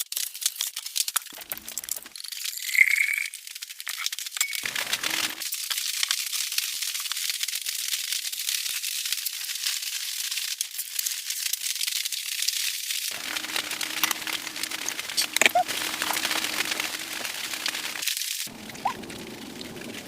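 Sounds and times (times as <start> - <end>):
dense patter of tiny ticks: 0.0 - 2.2, 4.6 - 20.0
low steady hum and rumble: 13.2 - 20.0.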